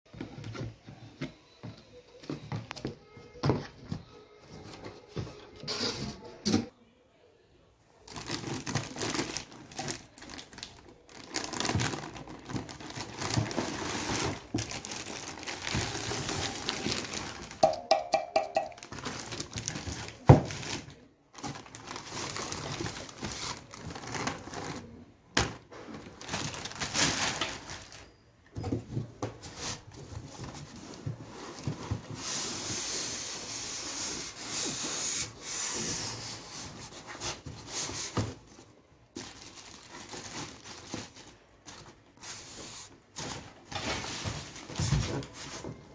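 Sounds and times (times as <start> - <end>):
packaging rustling and tearing: 8.0 - 17.6, 18.7 - 28.1, 29.4 - 45.8.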